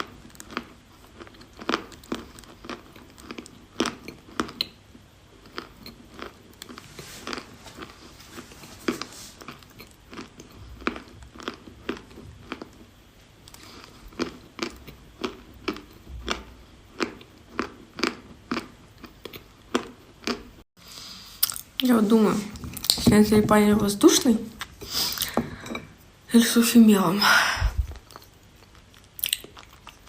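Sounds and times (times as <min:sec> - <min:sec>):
person chewing chalk: 0:13.5 - 0:20.5.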